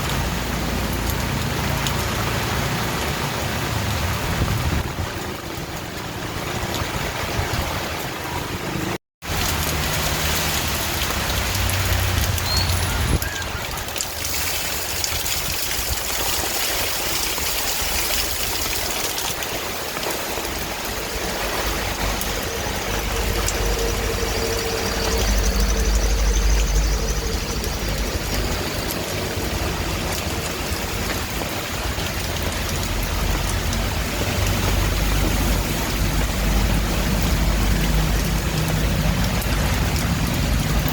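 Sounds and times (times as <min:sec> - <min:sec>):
heavy rain: 0:00.0 - 0:40.9
low rumble: 0:20.4 - 0:40.9.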